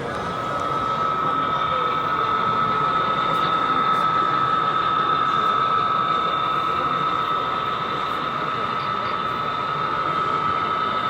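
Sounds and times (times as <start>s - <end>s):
busy hall room noise: 0.0s - 11.0s
high-pitched whine: 0.0s - 11.0s.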